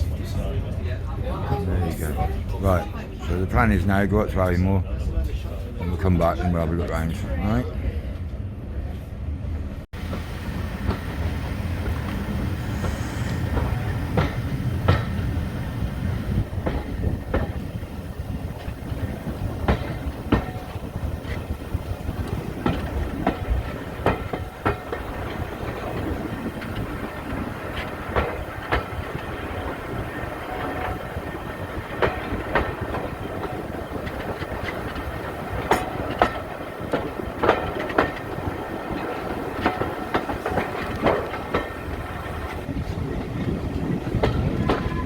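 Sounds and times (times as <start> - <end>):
train wheels rumbling on track: 0.0 - 45.0
wheels clicking over rail joints: 10.0 - 45.0.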